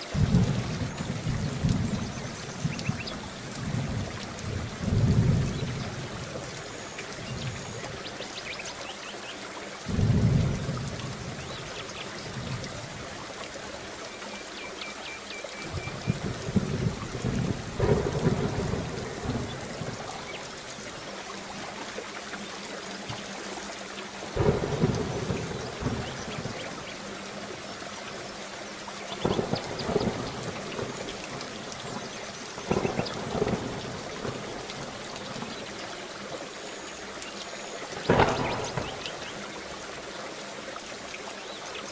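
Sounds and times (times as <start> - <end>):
heavy rain: 0.0 - 41.9
thunder rumbling: 0.1 - 6.6, 9.9 - 12.7, 15.7 - 20.7, 24.4 - 26.9, 29.2 - 35.6, 38.0 - 39.7.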